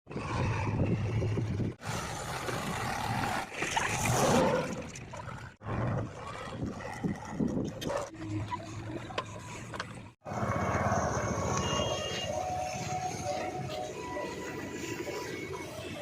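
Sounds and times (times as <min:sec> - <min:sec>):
diesel engines under load: 0:04.7 - 0:16.0.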